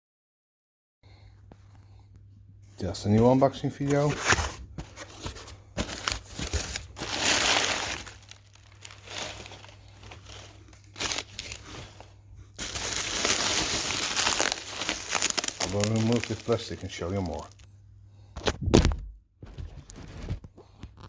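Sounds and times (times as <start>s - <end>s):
packaging crinkling: 3.9s - 17.7s.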